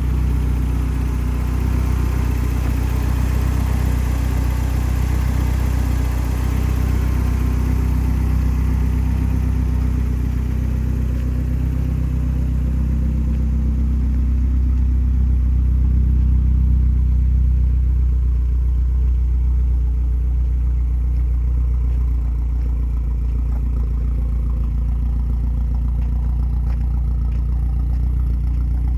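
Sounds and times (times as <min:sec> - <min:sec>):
truck engine idling: 0:00.0 - 0:28.9.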